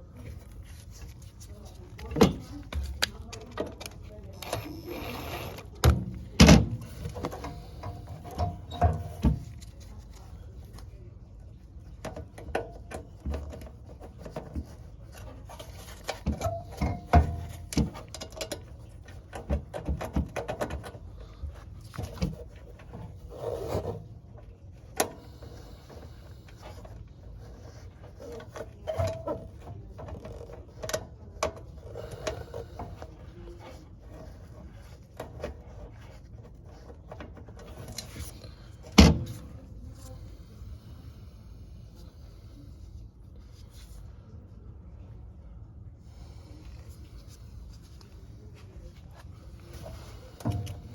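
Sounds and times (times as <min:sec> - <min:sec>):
tools clicking and knocking on metal: 0:15.6 - 0:21.0.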